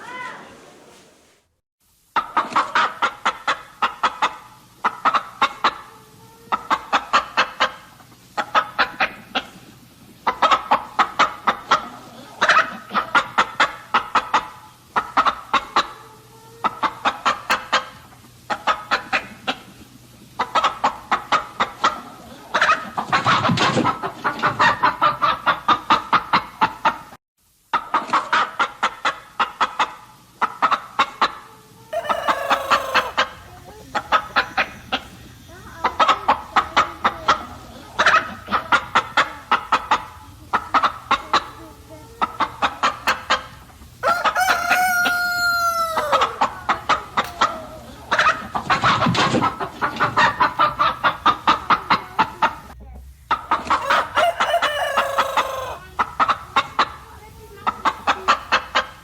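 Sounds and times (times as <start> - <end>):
chickens clucking: 2.1 - 59.0
loud chicken call: 30.7 - 52.5, 53.3 - 57.1.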